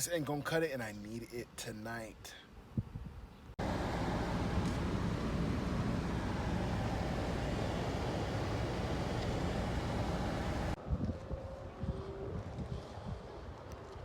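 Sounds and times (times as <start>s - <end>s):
car road and engine noise: 3.6s - 10.8s.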